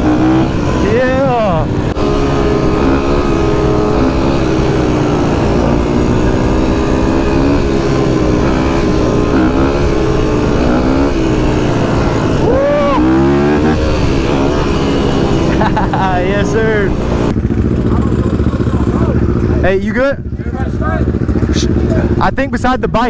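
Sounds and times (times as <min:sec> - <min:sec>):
rising and falling tone: 0:00.0 - 0:17.4
rushing noise: 0:00.0 - 0:17.4
vehicle engine running: 0:00.0 - 0:23.0.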